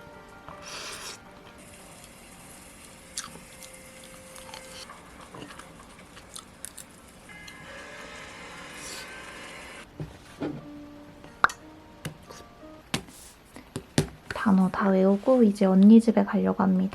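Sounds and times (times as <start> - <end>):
biting and chewing: 3.2 - 7.0.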